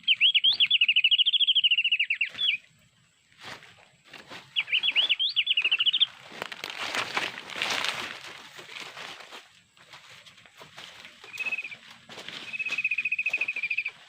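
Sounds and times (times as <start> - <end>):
bird high chirping: 0.0 - 2.7, 4.4 - 6.2, 11.2 - 14.0
rustle: 3.3 - 14.0.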